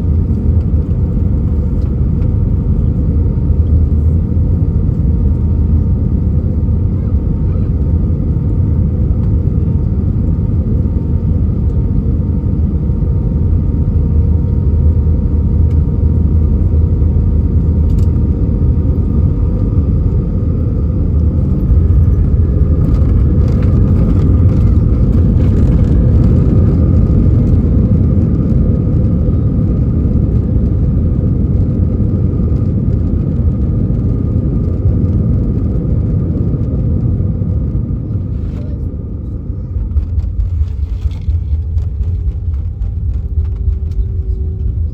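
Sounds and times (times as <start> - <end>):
aircraft cabin engine rumble: 0.0 - 44.9.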